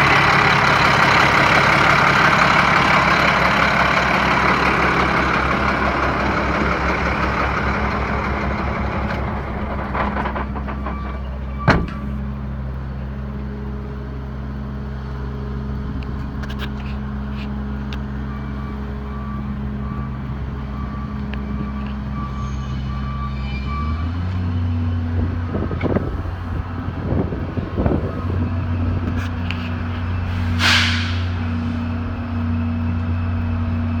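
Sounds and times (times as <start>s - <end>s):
diesel engine idling: 0.0s - 34.0s
hiss: 30.3s - 31.9s.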